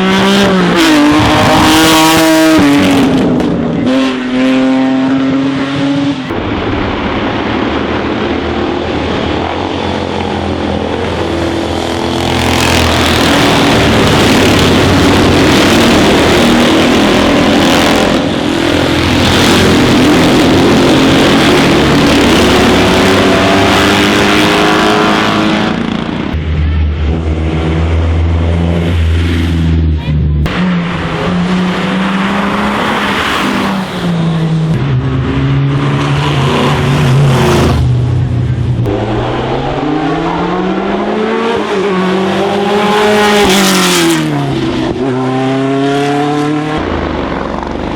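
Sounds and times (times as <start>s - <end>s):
racing car engines accelerating: 0.0s - 47.9s.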